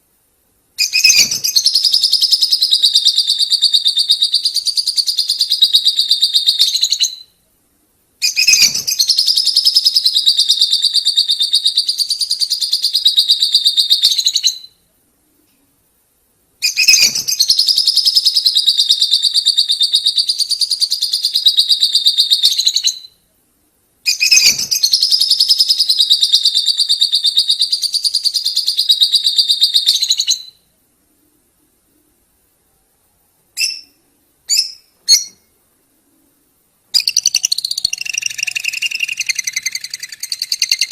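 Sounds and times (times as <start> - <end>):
lovebirds chattering trill: 37.0 - 40.9
short bird chirps: 37.0 - 40.9.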